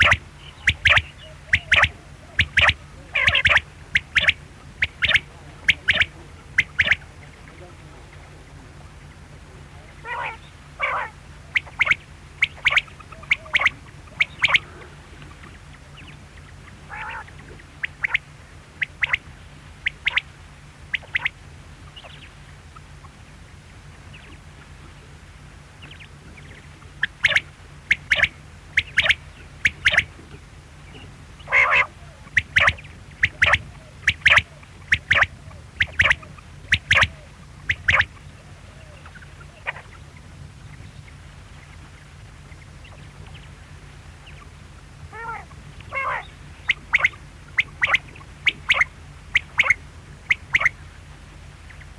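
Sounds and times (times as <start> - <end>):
quail calling: 0.0 - 23.2, 25.8 - 41.2, 44.2 - 50.9
steady low hum: 0.0 - 51.9.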